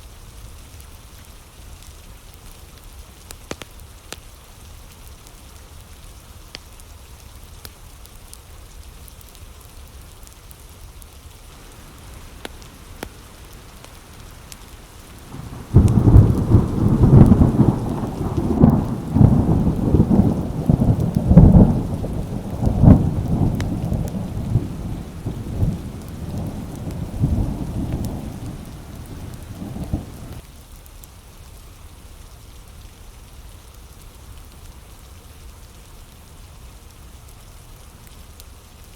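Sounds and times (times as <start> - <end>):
steady rain: 0.0 - 38.9
thunder clap and rumble: 11.5 - 30.4.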